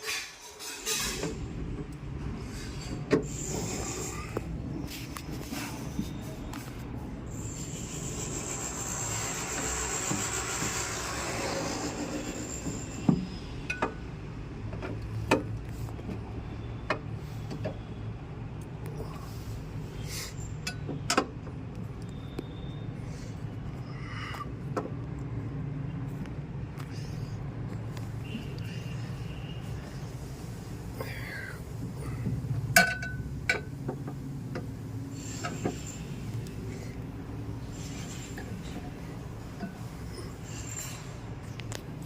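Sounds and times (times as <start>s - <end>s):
hiss: 35.1s - 36.9s.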